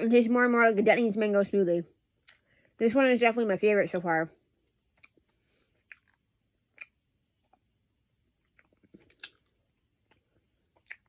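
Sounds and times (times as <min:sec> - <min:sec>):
mouth clicks and smacks: 0:04.9 - 0:07.7, 0:08.4 - 0:11.0.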